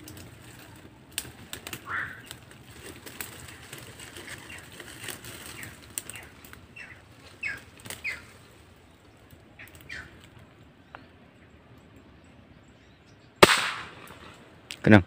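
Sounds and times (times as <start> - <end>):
leaves and twigs rustling and snapping: 0.0 - 11.1
bird falling calls: 0.0 - 11.2.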